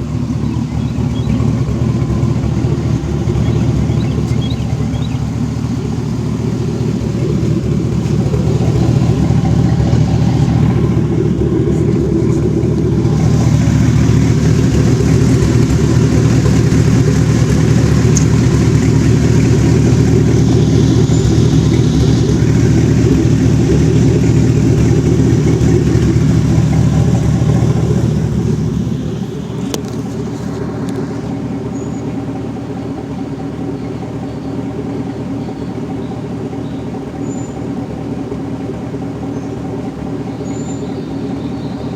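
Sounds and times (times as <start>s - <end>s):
deep exhaust note of engine: 0.0s - 41.9s.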